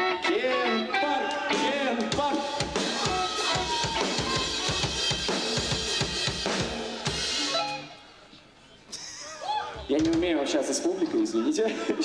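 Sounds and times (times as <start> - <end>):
drum kit beat: 1.3 - 7.9.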